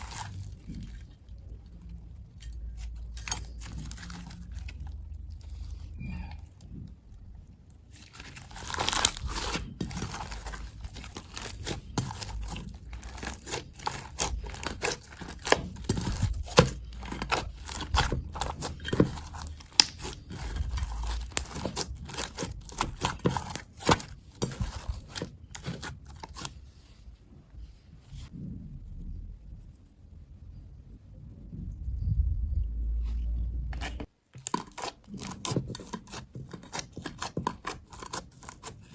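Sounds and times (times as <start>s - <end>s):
slime soft tearing: 7.7s - 26.6s.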